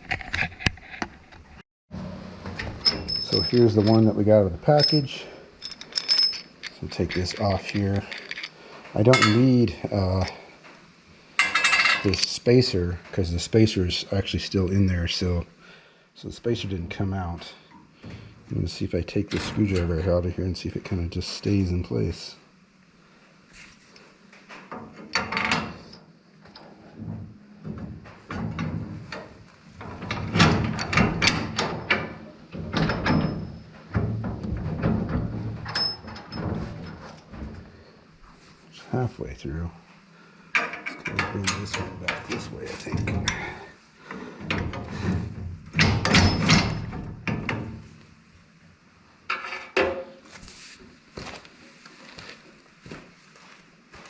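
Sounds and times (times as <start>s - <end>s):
metal clunks and scraping: 0.0s - 10.8s, 11.4s - 12.4s, 24.4s - 38.5s, 40.5s - 48.0s, 49.2s - 50.6s.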